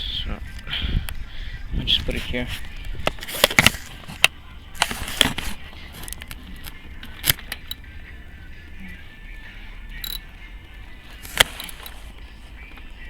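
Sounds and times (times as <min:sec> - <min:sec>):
low steady hum: 0:00.0 - 0:13.0
camera being set in place: 0:02.5 - 0:07.6, 0:11.2 - 0:12.1
tools clicking on engine: 0:02.7 - 0:07.9, 0:09.9 - 0:10.4, 0:11.1 - 0:12.9.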